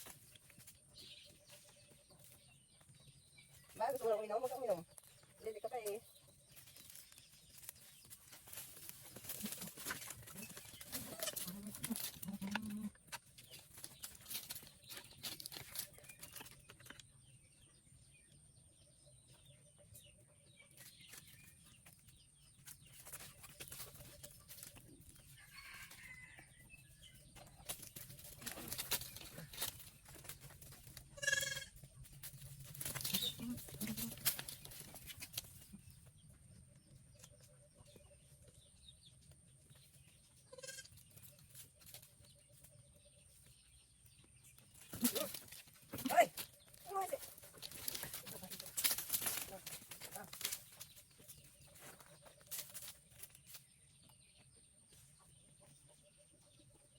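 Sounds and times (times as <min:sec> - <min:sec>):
goats bleating: 0:11.0 - 0:13.0, 0:31.2 - 0:31.7, 0:40.5 - 0:40.9.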